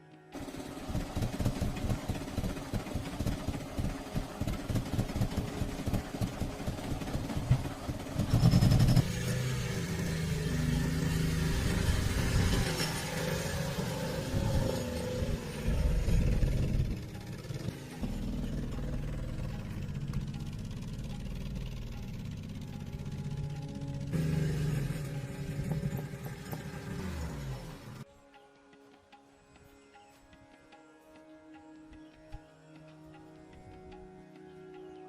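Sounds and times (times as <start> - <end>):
vehicle engine running: 0.4 - 28.0.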